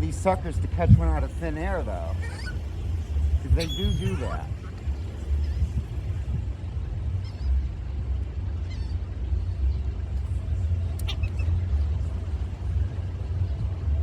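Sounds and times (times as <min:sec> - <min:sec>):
steady low rumble: 0:00.0 - 0:14.0
short high bird calls: 0:01.8 - 0:06.1.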